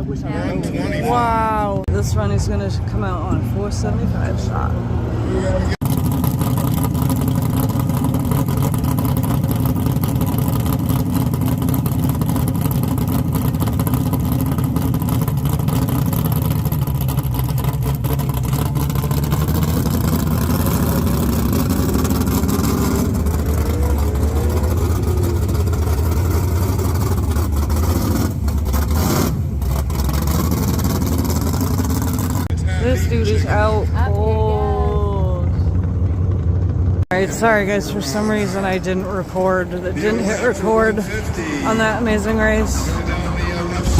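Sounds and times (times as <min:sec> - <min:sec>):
race car engines rumbling: 0:00.0 - 0:43.9.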